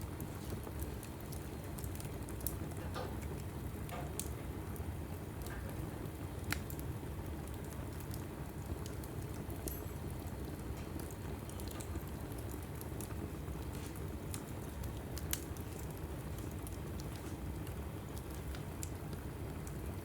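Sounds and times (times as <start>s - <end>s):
log fire crackling and popping: 0.0s - 20.0s
low rumble of flame: 0.0s - 20.0s.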